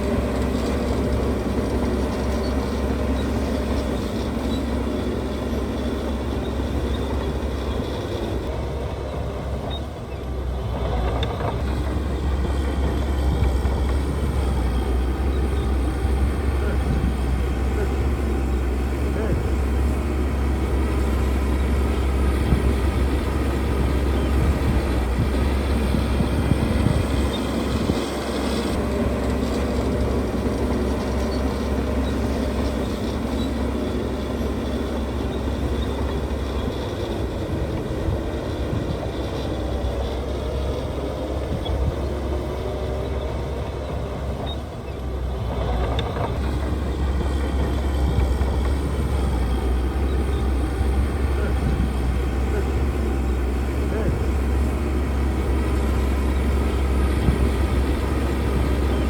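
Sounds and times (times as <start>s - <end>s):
heavy machinery diesel engine rumble: 0.0s - 59.0s.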